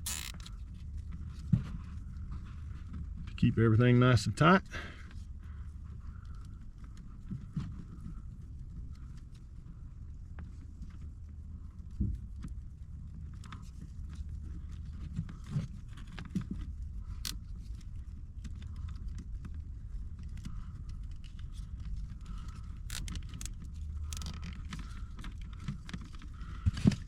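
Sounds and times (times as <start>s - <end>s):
zip ties clicking: 0.0s - 0.5s, 22.4s - 24.4s.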